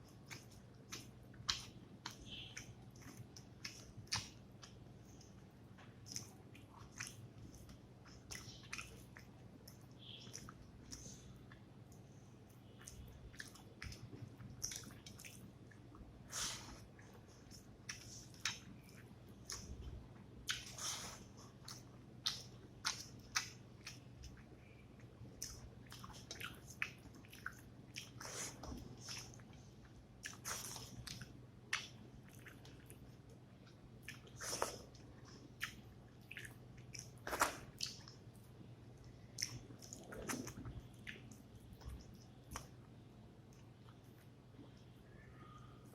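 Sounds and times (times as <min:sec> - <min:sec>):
low steady hum: 0:00.0 - 0:45.9
wet chewing and lip smacks: 0:00.1 - 0:16.0, 0:16.7 - 0:44.9.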